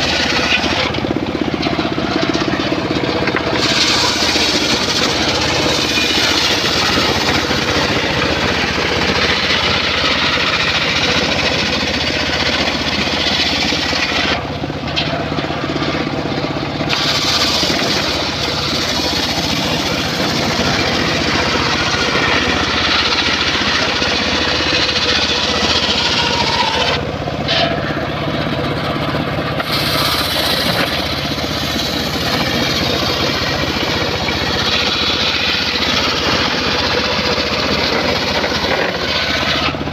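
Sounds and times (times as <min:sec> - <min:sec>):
circular saw cutting wood: 0:00.0 - 0:39.9
saw motor humming: 0:00.0 - 0:39.9.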